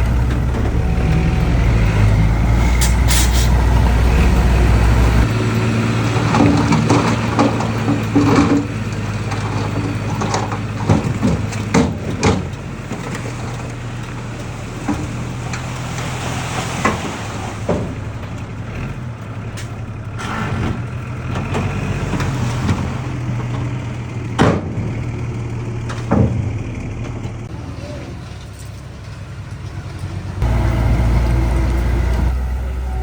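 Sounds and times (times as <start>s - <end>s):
heavy equipment engine idling: 0.0s - 15.8s, 23.0s - 33.0s.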